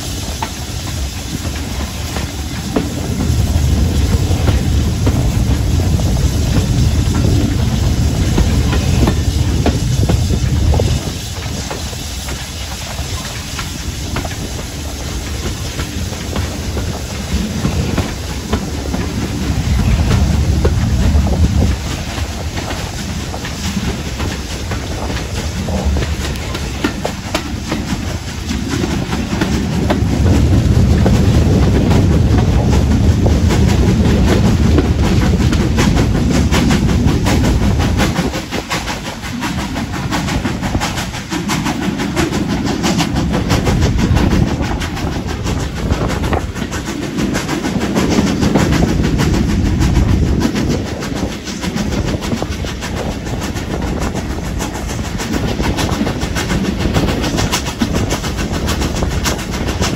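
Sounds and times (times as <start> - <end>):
clickety-clack over track: 0.0 - 59.9
train wheels rumbling on rails: 0.0 - 59.9.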